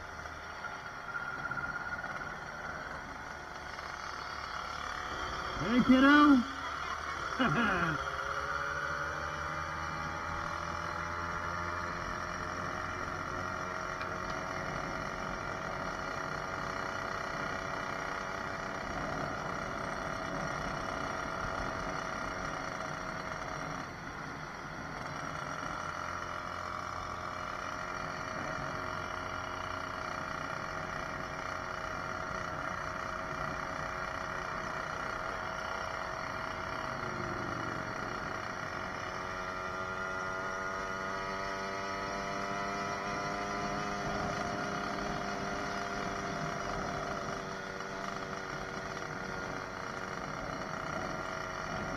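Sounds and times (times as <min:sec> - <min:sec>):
motorized bicycle engine running: 0:00.0 - 0:51.9.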